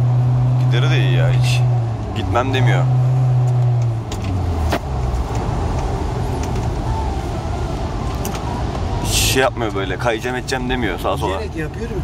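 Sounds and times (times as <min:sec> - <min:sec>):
tyre noise on wet road: 0:00.0 - 0:10.8
car engine drone: 0:00.0 - 0:12.0.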